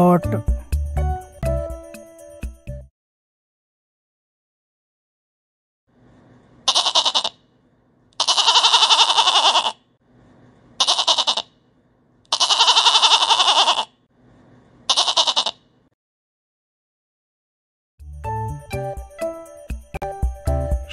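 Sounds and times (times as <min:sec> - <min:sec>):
goats bleating: 0:06.7 - 0:07.3, 0:08.2 - 0:09.8, 0:10.8 - 0:11.5, 0:12.3 - 0:13.9, 0:14.9 - 0:15.6.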